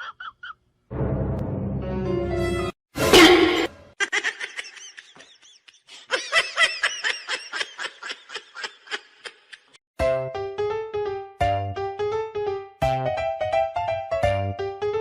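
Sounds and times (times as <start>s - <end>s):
high-pitched laughter: 0.0s - 0.6s, 4.0s - 9.8s.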